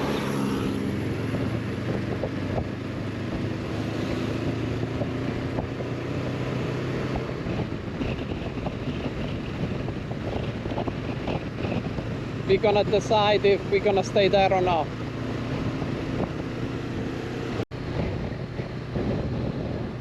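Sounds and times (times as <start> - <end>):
motorcycle engine running: 0.0 - 20.0
wind rushing over microphone: 0.0 - 20.0.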